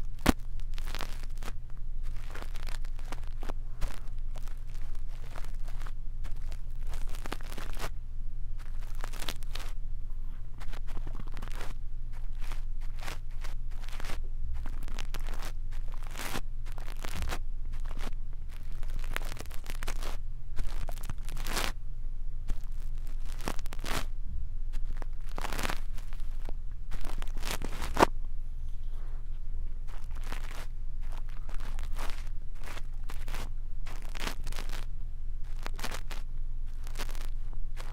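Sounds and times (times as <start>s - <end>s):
brush bristles scratching microphone: 0.0s - 8.0s, 8.6s - 21.8s, 22.5s - 37.9s
faint low hum: 0.0s - 37.9s.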